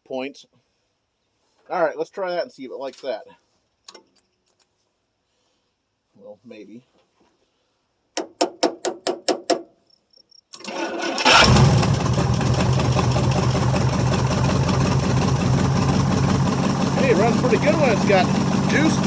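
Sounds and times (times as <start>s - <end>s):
engine cranking and starting: 10.6s - 19.0s.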